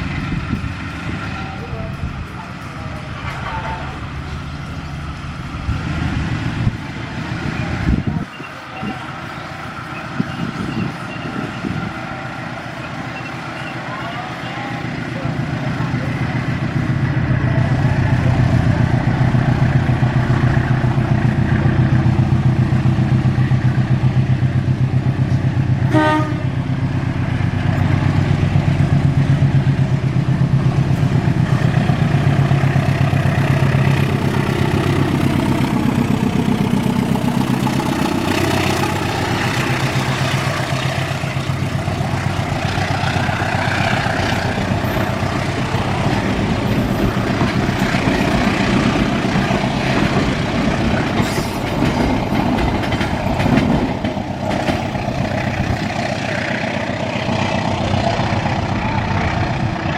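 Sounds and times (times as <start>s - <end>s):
diesel locomotive engine running: 0.0s - 59.9s
brief tone: 8.2s - 9.1s.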